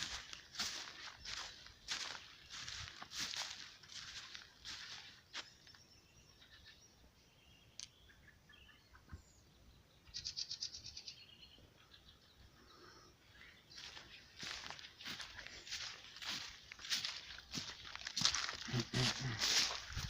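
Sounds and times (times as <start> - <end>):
footsteps: 0.0 - 5.5, 13.8 - 20.0
small bird chirps: 0.0 - 17.8.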